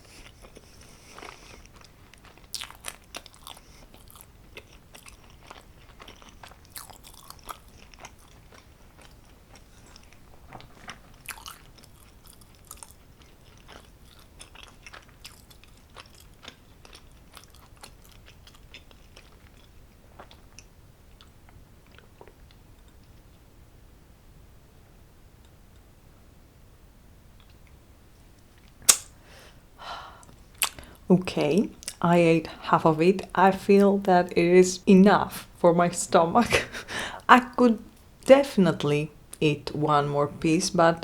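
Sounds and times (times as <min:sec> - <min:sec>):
chewing crunchy food: 0:00.0 - 0:23.3, 0:30.2 - 0:31.0.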